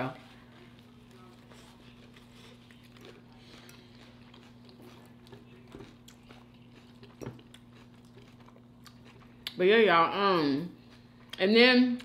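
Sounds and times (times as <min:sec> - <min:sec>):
chewing mouth sounds: 0:00.2 - 0:09.6.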